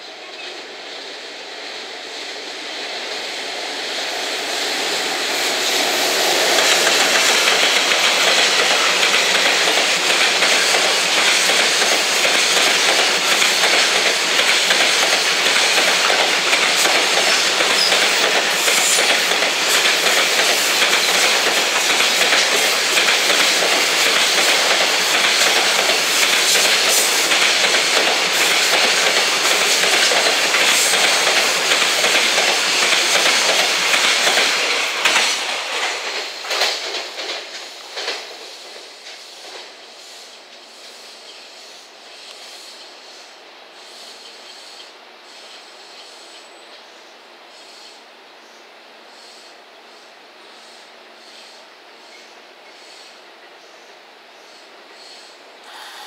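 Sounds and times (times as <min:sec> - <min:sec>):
freight train passing: 0:00.0 - 0:48.2, 0:48.8 - 0:56.0
wheels clicking over rail joints: 0:06.2 - 0:39.7.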